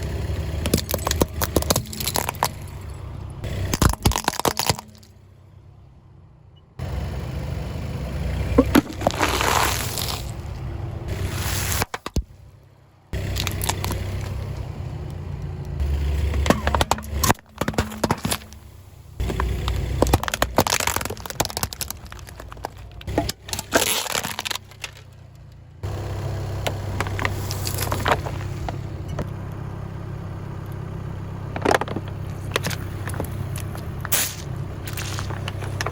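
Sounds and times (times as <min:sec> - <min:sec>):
low engine hum: 0:00.0 - 0:35.9
tyres crushing objects: 0:00.6 - 0:05.2, 0:08.6 - 0:10.5, 0:11.3 - 0:12.4, 0:13.2 - 0:14.6, 0:16.2 - 0:25.3, 0:26.7 - 0:28.9, 0:31.5 - 0:35.9.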